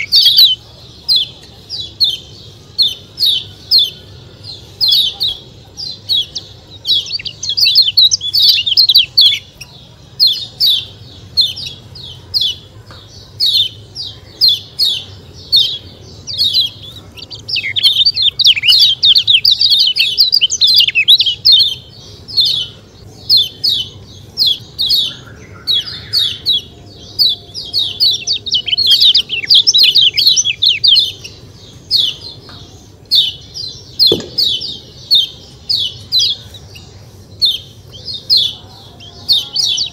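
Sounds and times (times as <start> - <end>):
songbird chirping rapidly: 0.0 - 39.9.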